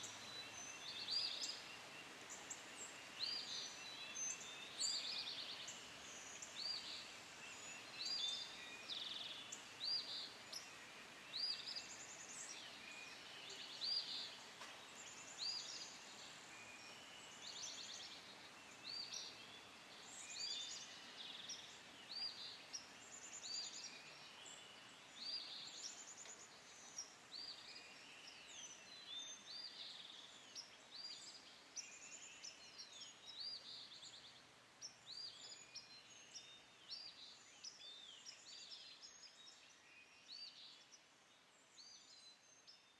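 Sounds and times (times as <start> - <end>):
faint background hiss: 0.0 - 42.9
songbirds chirping and trilling: 0.0 - 42.9.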